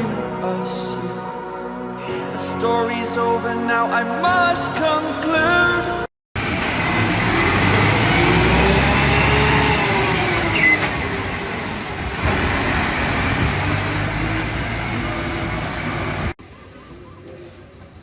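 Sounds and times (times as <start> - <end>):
diesel truck engine running: 6.4 - 16.4
brief high squeal: 10.4 - 11.0.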